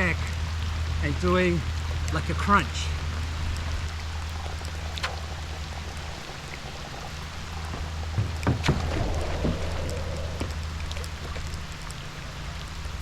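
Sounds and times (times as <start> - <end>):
water lapping and trickling: 0.0 - 13.0
short splashes: 2.9 - 12.9.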